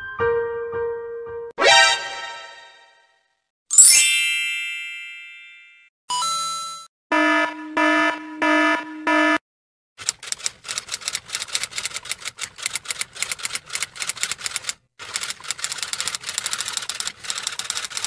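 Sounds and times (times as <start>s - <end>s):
alarm tones: 6.1s - 9.4s
typewriter clattering: 10.0s - 18.0s.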